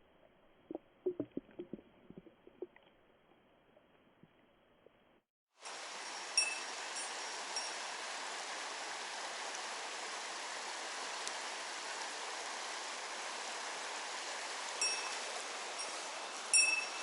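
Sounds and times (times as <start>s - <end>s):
stream rushing over rocks: 5.6s - 17.0s.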